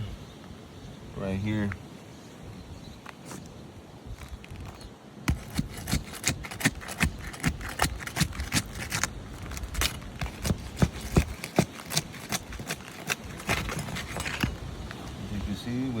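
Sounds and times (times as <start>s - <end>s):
footsteps on shingle roof: 3.0s - 15.6s.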